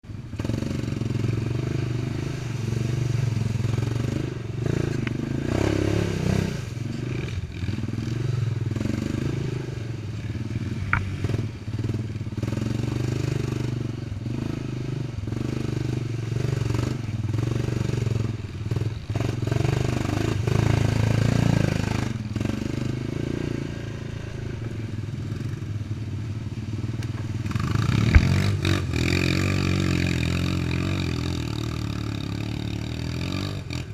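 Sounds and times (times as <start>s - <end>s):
quad bike engine revving: 0.2s - 33.9s
sharp knock: 28.0s - 28.5s.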